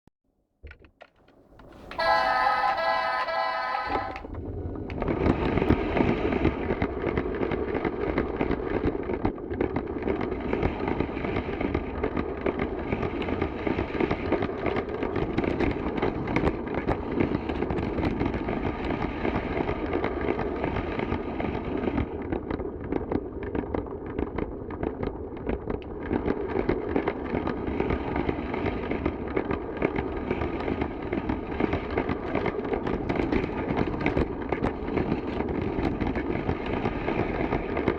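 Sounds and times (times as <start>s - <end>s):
toy train clattering on track: 1.1s - 4.4s
toy train motor whine: 1.6s - 4.4s.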